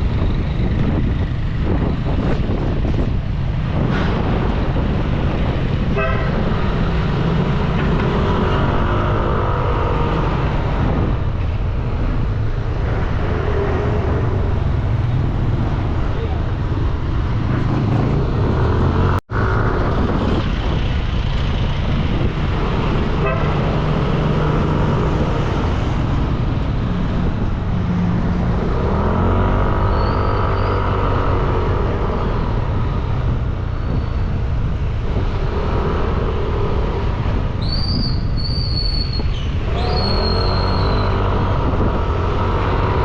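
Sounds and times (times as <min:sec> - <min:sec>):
wind and road noise: 0:00.0 - 0:43.0
vehicle horns: 0:05.9 - 0:06.5, 0:23.2 - 0:23.8.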